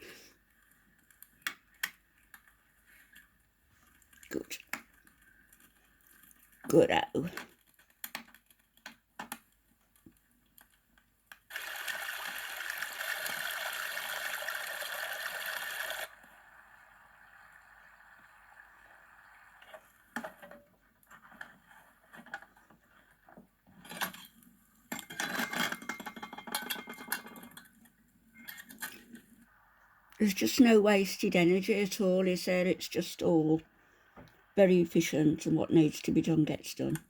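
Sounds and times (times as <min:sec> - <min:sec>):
knocks and handling noises: 0:20.2 - 0:29.4.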